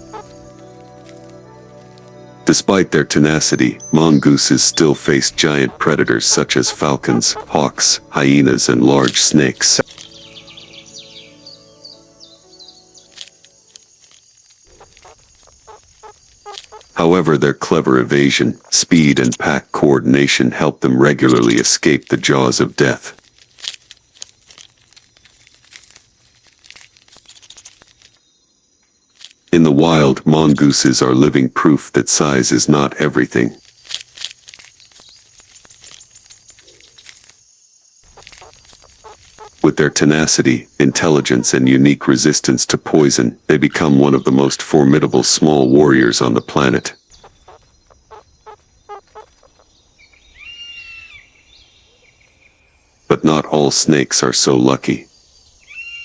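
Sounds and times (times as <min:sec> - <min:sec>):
faint animal chirps: 0:00.0 - 0:00.6, 0:03.0 - 0:17.2, 0:38.0 - 0:41.8, 0:45.9 - 0:52.9, 0:55.1 - 0:56.0
whistled animal call: 0:03.5 - 0:08.0, 0:50.2 - 0:52.2, 0:55.6 - 0:56.0
faint crackling and rustling: 0:13.0 - 0:19.6, 0:21.0 - 0:29.6, 0:32.1 - 0:41.6, 0:47.0 - 0:50.4.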